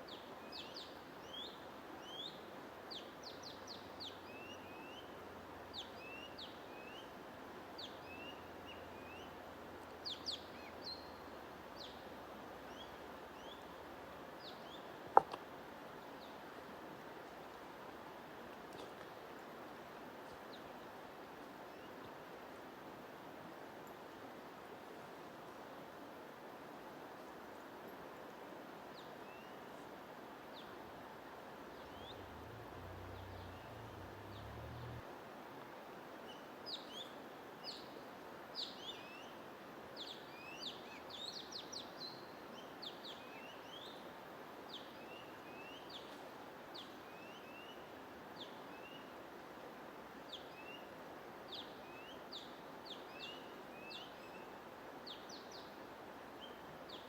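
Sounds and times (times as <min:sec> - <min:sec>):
steady white noise hiss: 0:00.0 - 0:57.0.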